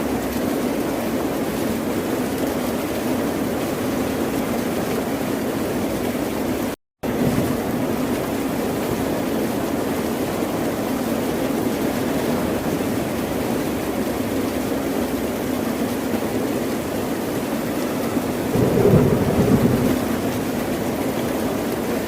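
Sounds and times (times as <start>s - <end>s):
ocean surf: 17.6s - 21.4s.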